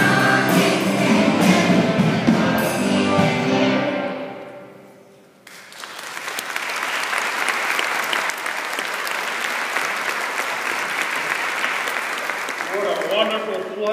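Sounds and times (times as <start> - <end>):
audience applause: 5.5 - 13.9.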